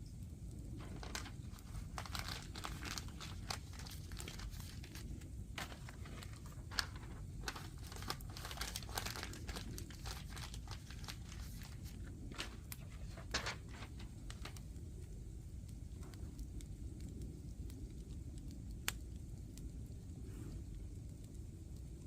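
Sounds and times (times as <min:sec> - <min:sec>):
firewood crackling and popping: 0:00.0 - 0:22.0
low steady rumble: 0:00.0 - 0:22.0.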